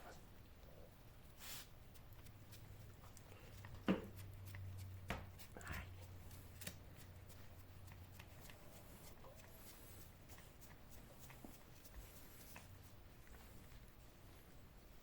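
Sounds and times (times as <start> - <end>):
low steady hum: 0.0 - 15.0
rustling and handling noises: 1.3 - 15.0.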